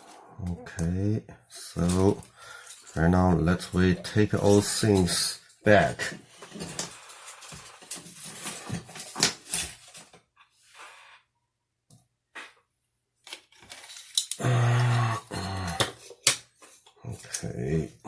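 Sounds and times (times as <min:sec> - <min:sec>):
plastic parts clicking and rubbing: 0:13.2 - 0:14.4.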